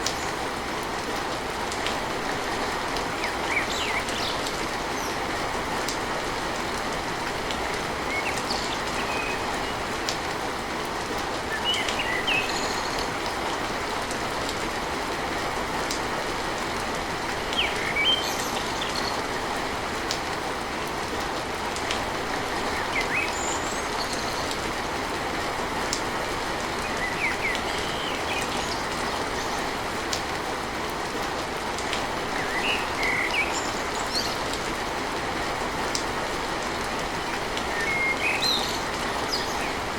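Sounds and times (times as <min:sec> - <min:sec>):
rain drumming on a tin roof: 0:00.0 - 0:39.9.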